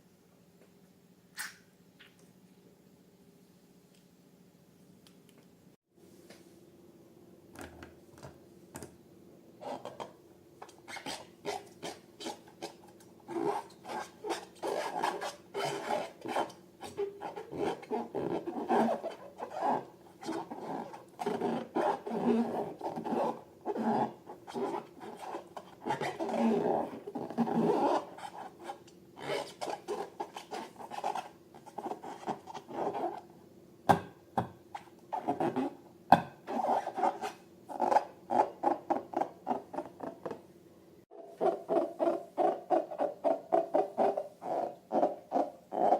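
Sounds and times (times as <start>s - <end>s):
slime rubbing and scraping: 10.6s - 33.3s, 36.5s - 40.0s.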